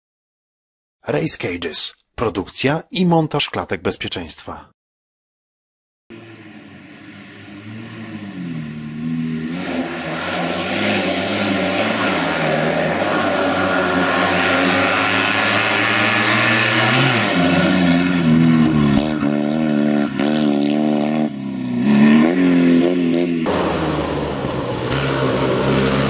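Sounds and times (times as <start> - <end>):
car engine revving: 6.1 - 26.0.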